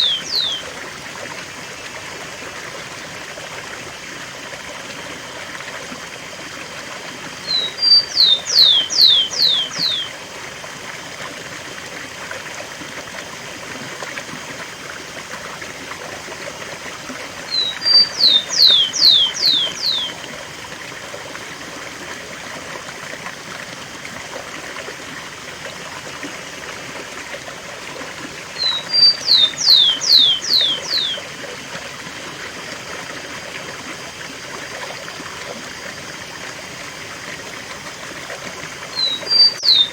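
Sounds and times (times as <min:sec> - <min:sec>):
sparrow singing whistled song: 0:00.0 - 0:00.7, 0:07.4 - 0:10.1, 0:17.5 - 0:20.2, 0:28.6 - 0:31.2, 0:39.0 - 0:39.9.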